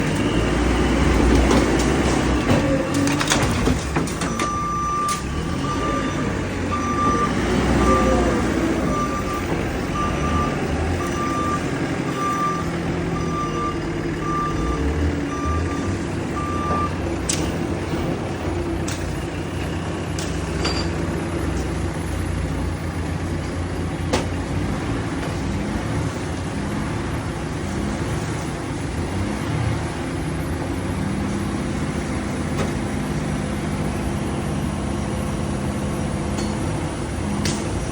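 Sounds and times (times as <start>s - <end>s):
reversing alarm beeping: 0.0s - 3.4s, 4.1s - 20.9s
diesel engine running: 0.0s - 37.9s.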